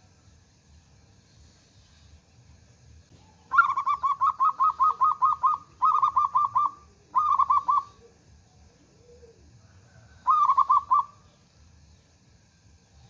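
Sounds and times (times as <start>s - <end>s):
dove cooing: 3.2s - 11.2s.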